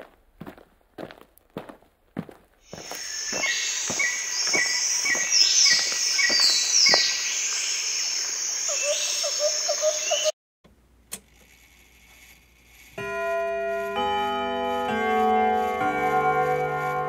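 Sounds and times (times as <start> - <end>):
footsteps on dirt path: 0.0 - 7.7
insect chorus: 2.6 - 10.3.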